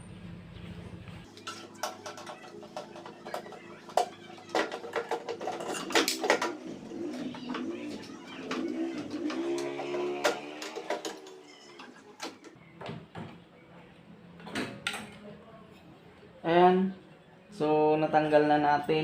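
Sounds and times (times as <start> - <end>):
birds cooing: 1.3 - 13.0.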